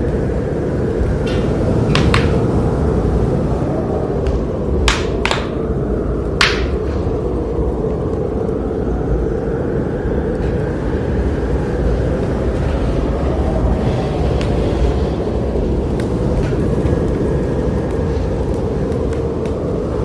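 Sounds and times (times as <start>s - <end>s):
fire flames rumbling: 0.0s - 20.0s
wood fire crackling pops: 1.0s - 2.7s, 4.2s - 5.7s, 6.3s - 7.1s.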